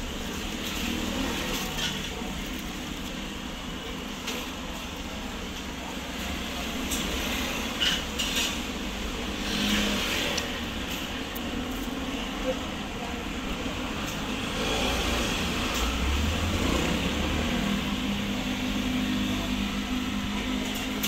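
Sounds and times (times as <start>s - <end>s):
street traffic hum: 0.0s - 21.0s.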